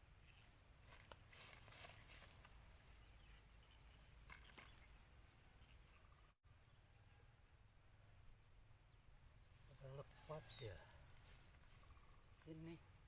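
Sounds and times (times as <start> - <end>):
soft rustles: 0.9 - 2.6.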